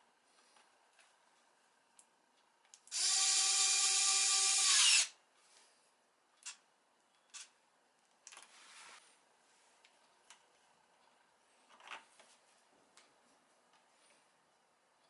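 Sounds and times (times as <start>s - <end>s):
power tool whining: 2.9s - 5.1s.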